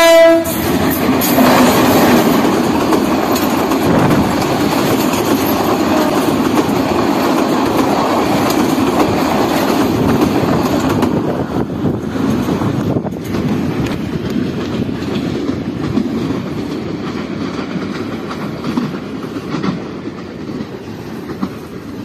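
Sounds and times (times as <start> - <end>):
train rumbling on track: 0.0 - 22.0
wheels clacking over rail joints: 0.1 - 22.0.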